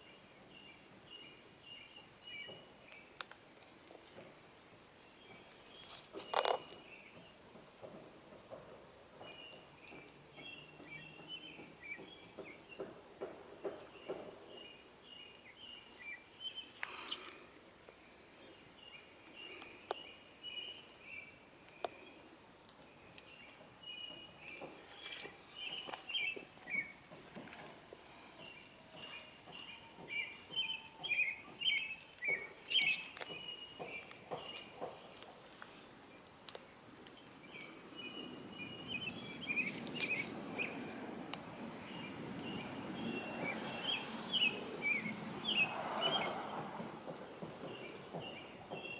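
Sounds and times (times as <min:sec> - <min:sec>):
bird chirping: 0:23.0 - 0:48.9.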